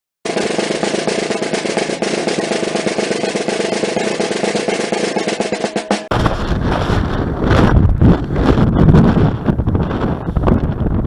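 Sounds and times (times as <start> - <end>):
snare drum roll: 0.3 - 9.3
wind buffeting microphone: 6.1 - 11.0.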